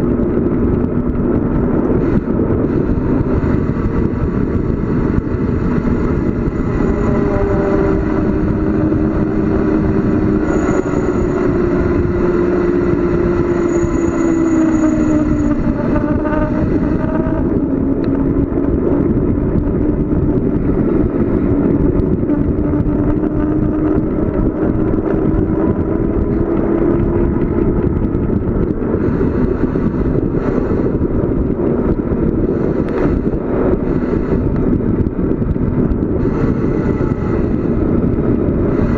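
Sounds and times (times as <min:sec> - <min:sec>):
bicycle road noise: 0:00.0 - 0:38.9
wind rush: 0:00.0 - 0:38.9
faint humming tone: 0:02.8 - 0:18.7.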